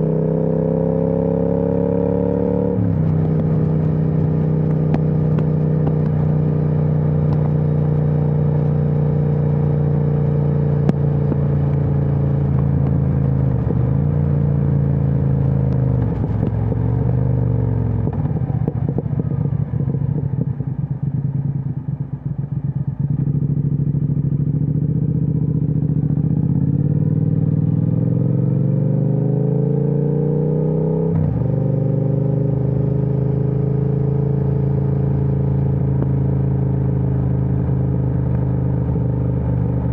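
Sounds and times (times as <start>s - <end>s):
motorcycle engine accelerating: 0.0s - 39.9s
exhaust popping and crackling: 2.9s - 7.9s, 10.8s - 14.1s, 15.4s - 16.9s.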